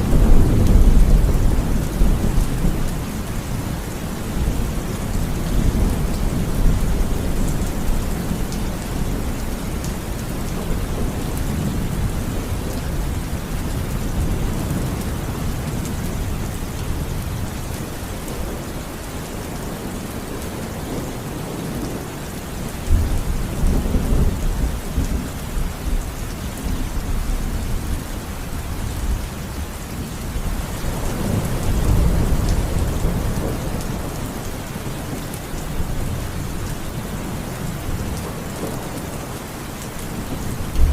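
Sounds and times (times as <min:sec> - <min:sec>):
thunder rumbling: 0:00.0 - 0:18.8, 0:40.1 - 0:40.9
heavy rain falling: 0:00.0 - 0:40.9.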